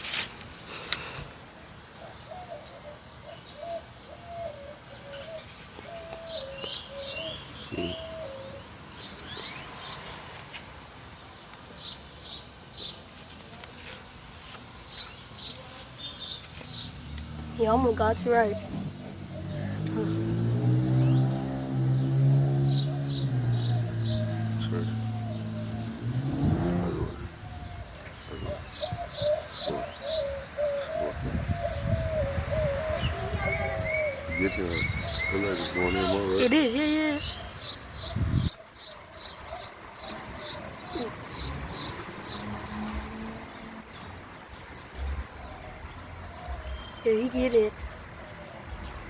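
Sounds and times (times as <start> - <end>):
low cooing call: 2.3 - 8.7, 18.5 - 36.4, 39.5 - 41.6
birds chirping high notes: 15.5 - 47.8.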